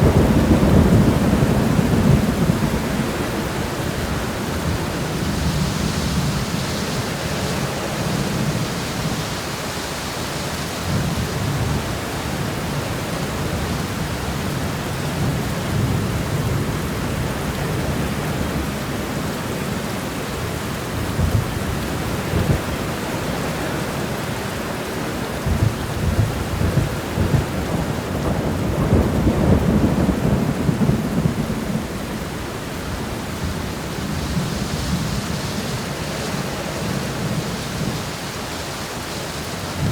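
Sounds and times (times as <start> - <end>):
steady rain falling: 0.0 - 39.9
low rolling rumble: 25.2 - 37.9.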